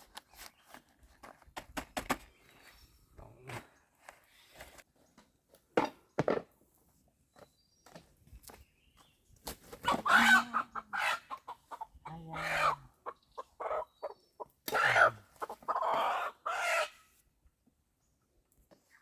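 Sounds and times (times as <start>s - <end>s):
chickens squawking and clucking: 9.8s - 17.1s.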